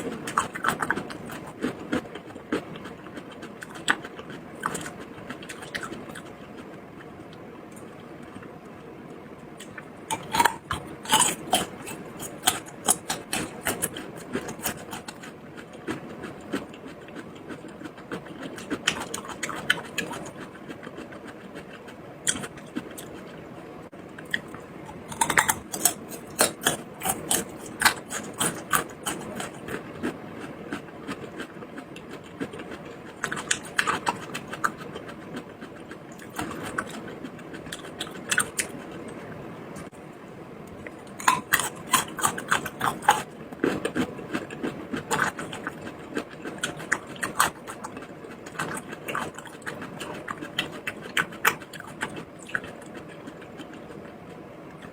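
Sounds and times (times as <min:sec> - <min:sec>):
chewing and biting: 0:00.0 - 0:08.5, 0:09.6 - 0:23.5, 0:24.1 - 0:39.9, 0:40.8 - 0:54.9.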